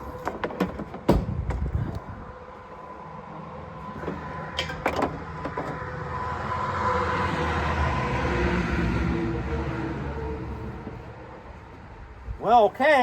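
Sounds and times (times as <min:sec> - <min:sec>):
vehicle engine passing: 0:02.8 - 0:11.7.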